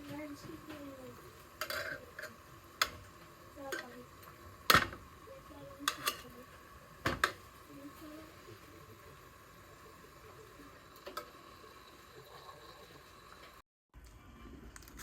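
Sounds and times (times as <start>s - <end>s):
dishes and cutlery clinking: 1.6s - 3.0s, 5.8s - 6.3s.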